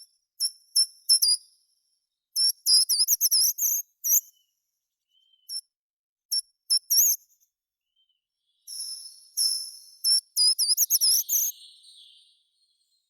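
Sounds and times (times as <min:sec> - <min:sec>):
songbird singing: 0:02.6 - 0:05.7, 0:07.9 - 0:13.0.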